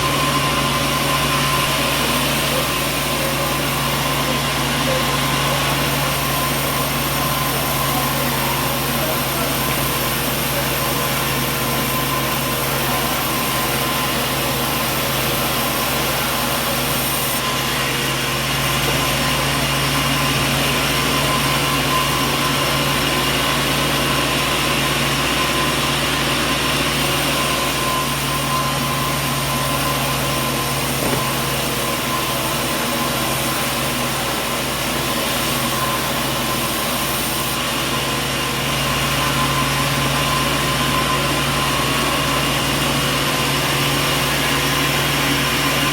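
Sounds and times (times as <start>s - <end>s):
motor hum: 0.0s - 15.2s
sawmill machinery running: 0.0s - 45.9s
steady machine whine: 0.0s - 45.9s.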